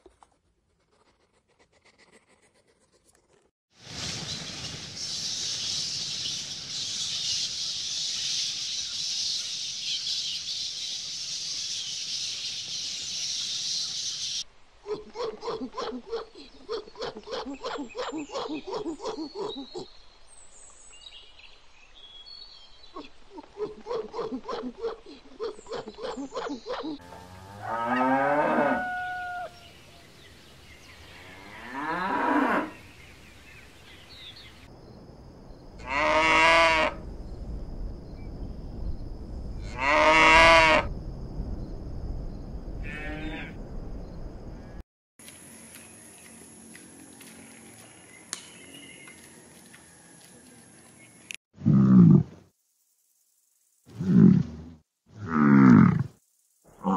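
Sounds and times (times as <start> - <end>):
cattle mooing: 27.0 - 29.5.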